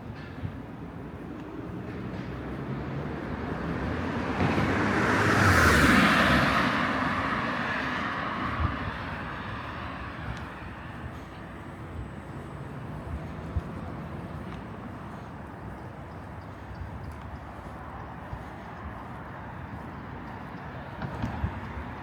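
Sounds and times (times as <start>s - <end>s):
city traffic noise: 0.0s - 22.0s
vehicle passing close by: 3.5s - 10.3s.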